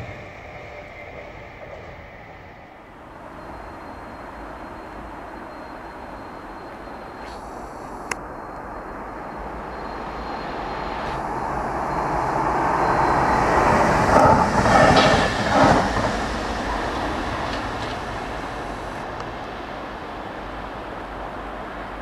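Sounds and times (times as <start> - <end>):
train wheels on rails: 0.0 - 22.0.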